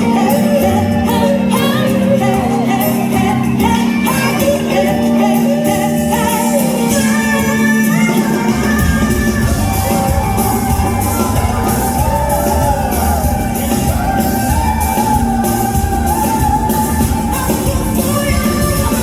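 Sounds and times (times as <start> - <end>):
band accompaniment: 0.0 - 19.0
bass and drums: 0.0 - 19.0
woman singing a pop ballad: 0.0 - 19.0.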